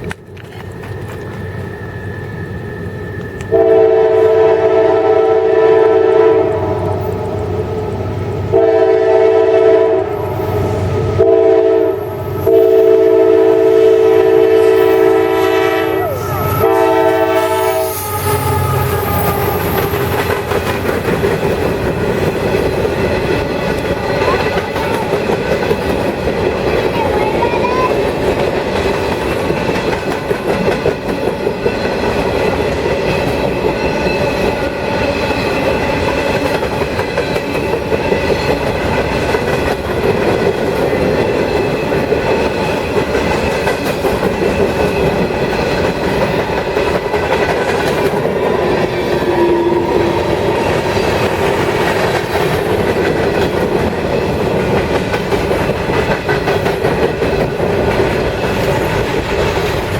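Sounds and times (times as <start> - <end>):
freight train rumbling past: 0.0 - 59.9
wheels clacking over rail joints: 18.6 - 49.2, 50.4 - 59.9.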